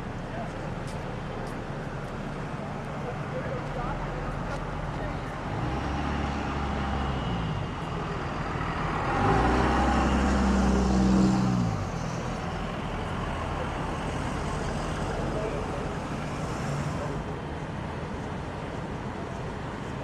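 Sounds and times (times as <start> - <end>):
low engine and traffic rumble: 0.0 - 20.0
vehicle engine passing by: 5.2 - 17.3.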